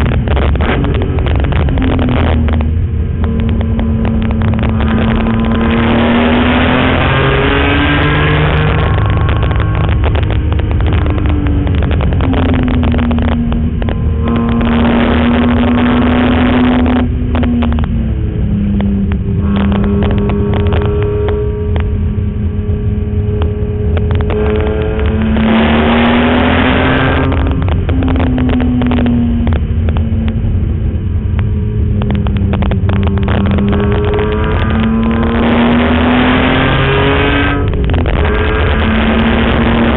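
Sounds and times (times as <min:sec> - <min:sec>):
car engine accelerating hard: 0:00.0 - 0:39.9
road and wind noise: 0:00.0 - 0:39.9.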